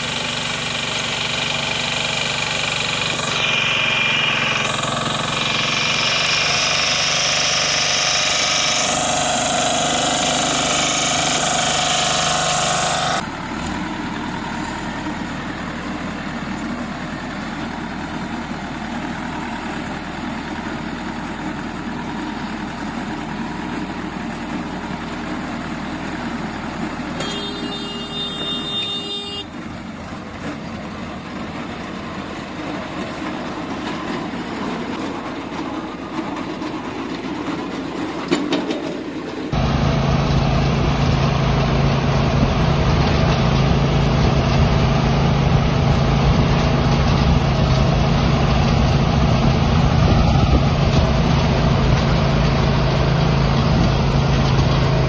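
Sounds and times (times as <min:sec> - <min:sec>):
hay baler running: 0:00.0 - 0:55.0
high machine squeal: 0:02.8 - 0:13.2, 0:27.2 - 0:29.5.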